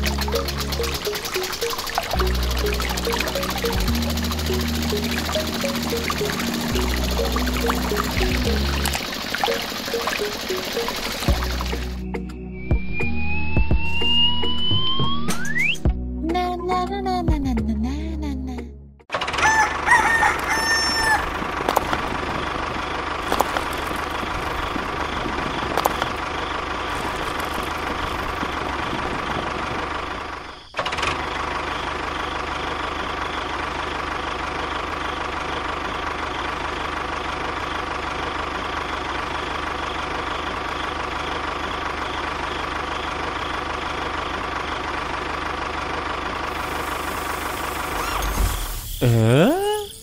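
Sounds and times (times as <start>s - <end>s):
tractor engine running: 0.0s - 12.1s, 19.1s - 49.5s.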